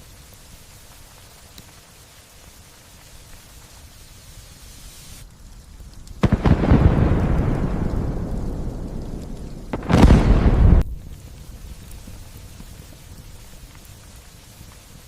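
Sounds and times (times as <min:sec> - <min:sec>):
light rain: 0:00.0 - 0:15.0
thunderclap and rumble: 0:05.6 - 0:13.0.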